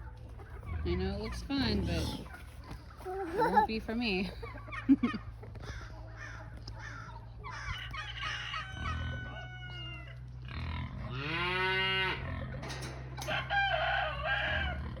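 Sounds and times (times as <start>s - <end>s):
chicken calls: 4.4s - 15.0s
rooster crowing: 7.6s - 10.2s, 13.1s - 15.0s.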